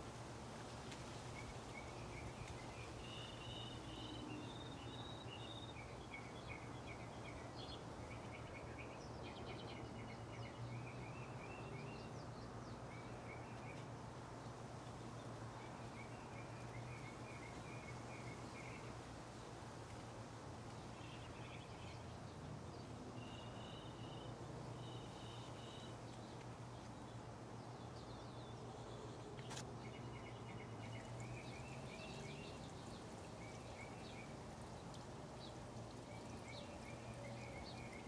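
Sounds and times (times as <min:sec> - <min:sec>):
songbirds chirping: 0:00.0 - 0:38.0.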